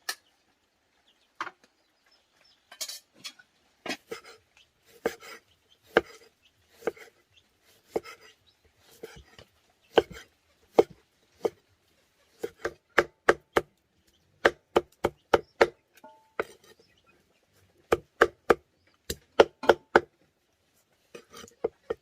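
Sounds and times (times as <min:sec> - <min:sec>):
knife chopping on wooden board: 0:04.9 - 0:07.1, 0:07.8 - 0:08.3, 0:08.9 - 0:11.6, 0:12.4 - 0:13.7, 0:14.4 - 0:16.8, 0:17.9 - 0:20.1.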